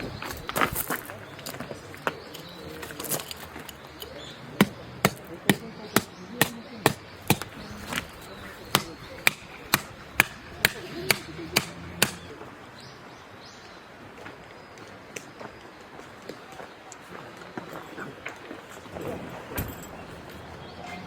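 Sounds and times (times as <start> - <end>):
sharp hand tool strikes: 4.6 - 12.2.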